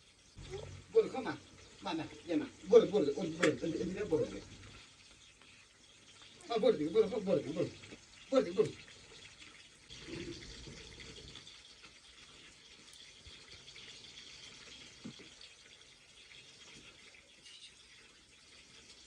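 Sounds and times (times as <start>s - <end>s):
faint watery hiss: 0.0s - 19.0s.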